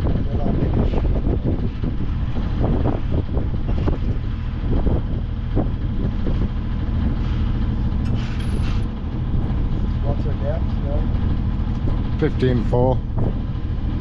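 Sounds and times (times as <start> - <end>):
boat engine rumble: 0.0 - 14.0
wind buffeting microphone: 0.0 - 14.0.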